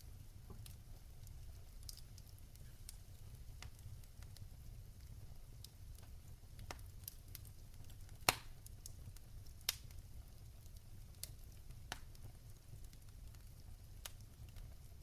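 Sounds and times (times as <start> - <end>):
wood fire crackling: 0.0 - 15.0
sharp pops and snaps: 1.8 - 3.0, 6.0 - 10.0, 11.2 - 12.3.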